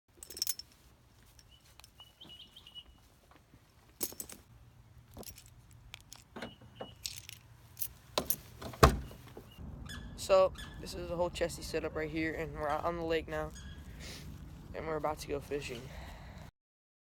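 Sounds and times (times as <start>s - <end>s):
gear clinking and rattling: 0.1s - 9.4s
bird chirping: 1.4s - 3.2s, 6.3s - 7.3s, 8.9s - 11.4s, 12.5s - 14.2s.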